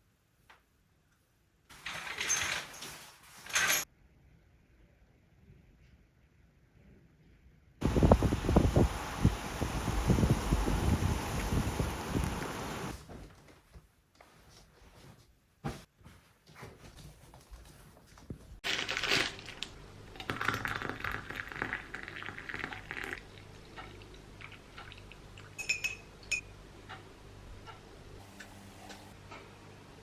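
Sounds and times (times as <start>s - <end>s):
liquid pouring: 20.3s - 25.5s
crockery clinking: 25.6s - 26.5s.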